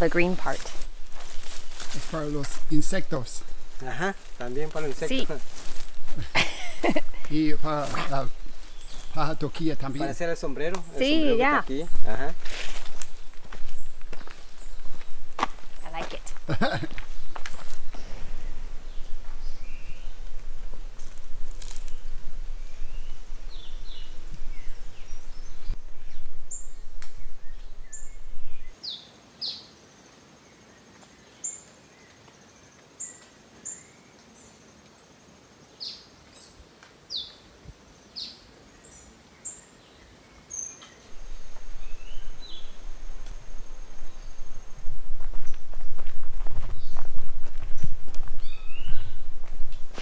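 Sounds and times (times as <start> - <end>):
birds calling: 0.0 - 29.7, 38.1 - 46.0.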